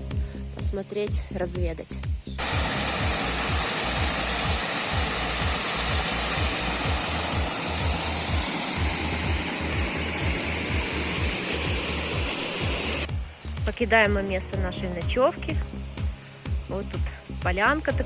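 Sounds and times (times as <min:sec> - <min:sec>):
waterfall rushing: 0:02.4 - 0:13.1.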